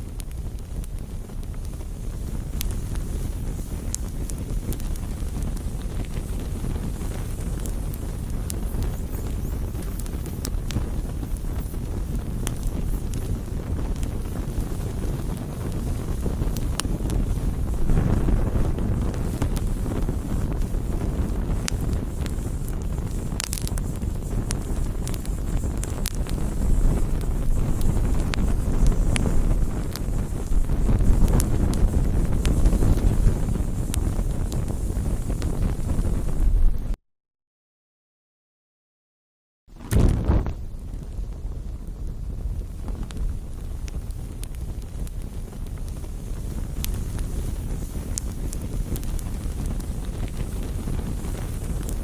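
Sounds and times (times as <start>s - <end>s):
bonfire crackling and roaring: 0.0s - 37.0s, 39.7s - 52.0s.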